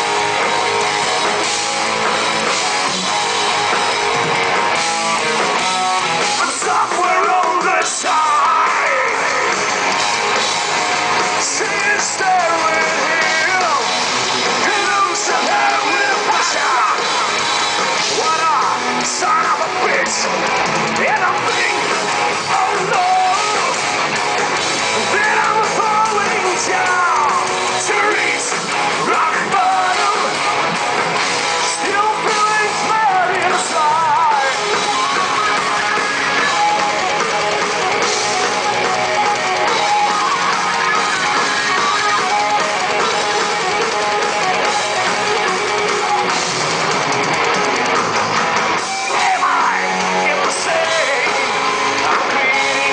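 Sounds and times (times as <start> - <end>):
distorted electric guitars: 0.0 - 52.9
drum kit: 0.0 - 52.9
heavy metal band playing: 0.0 - 52.9
person singing: 14.6 - 17.1, 21.0 - 23.8, 25.0 - 30.4, 31.6 - 36.8, 48.9 - 52.9.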